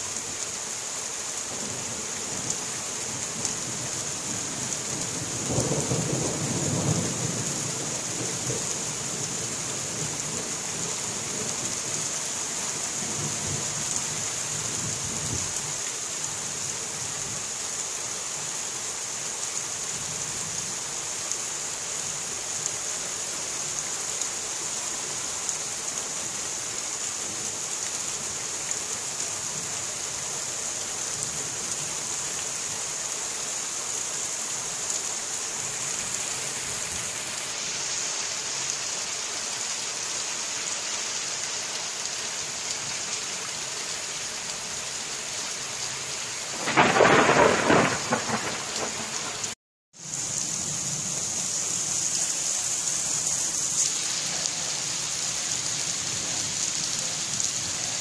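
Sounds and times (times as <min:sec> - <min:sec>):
rain hissing: 0:00.0 - 0:58.0
distant thunder rumble: 0:46.5 - 0:49.6.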